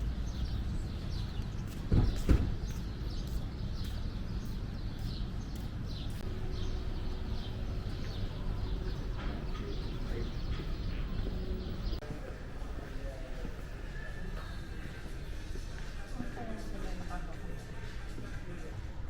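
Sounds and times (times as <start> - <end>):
birds chirping: 2.1 - 13.1
faint steady hum: 6.2 - 13.2
low outdoor rumble: 6.2 - 13.8.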